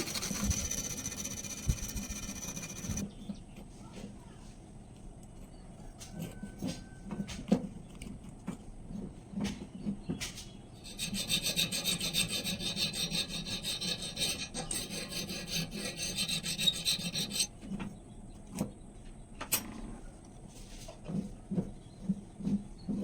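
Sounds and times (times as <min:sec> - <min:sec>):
knife blade scraping on abrasive: 0:00.0 - 0:03.0, 0:10.8 - 0:17.5.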